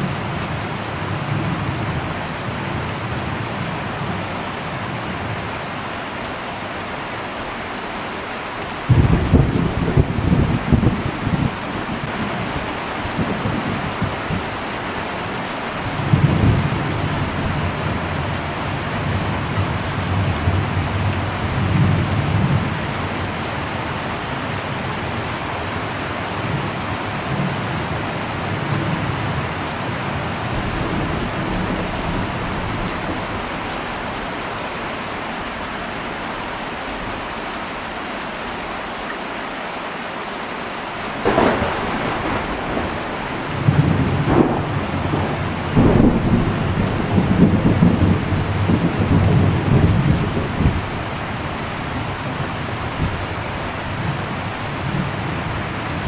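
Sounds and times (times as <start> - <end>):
heavy rain on a metal roof: 0.0 - 56.0
thunder rumbling: 8.8 - 25.2, 41.0 - 56.0.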